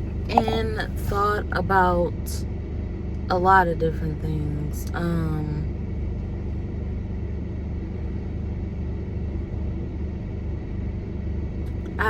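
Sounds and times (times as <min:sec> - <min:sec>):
person speaking: 0:00.1 - 0:00.8.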